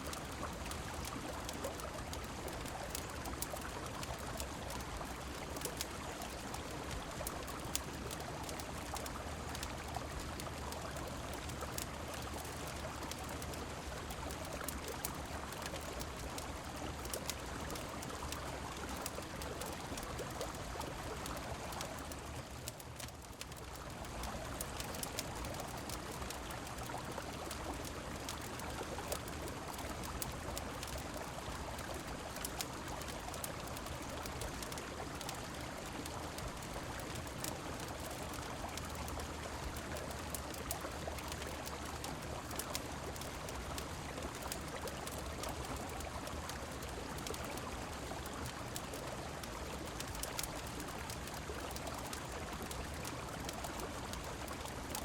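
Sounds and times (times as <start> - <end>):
falling rain: 0.0 - 55.0.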